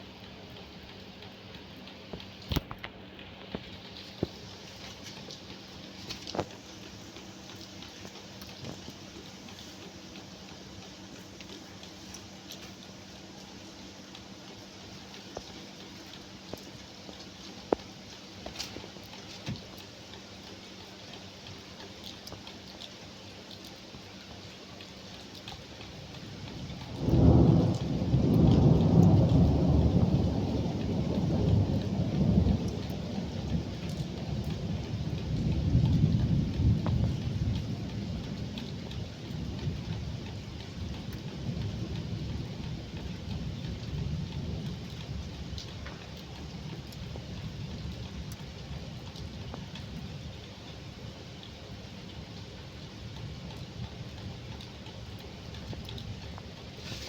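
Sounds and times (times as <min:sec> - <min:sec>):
rain pattering: 0:00.0 - 0:57.0
scattered drips: 0:00.1 - 0:57.0
thunderclap with low rumble: 0:26.1 - 0:57.0.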